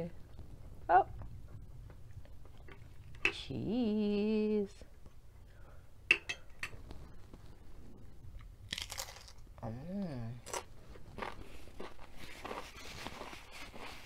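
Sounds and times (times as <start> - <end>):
crunching tortilla chip bites: 8.7 - 9.4
person humming mmm: 9.6 - 10.6.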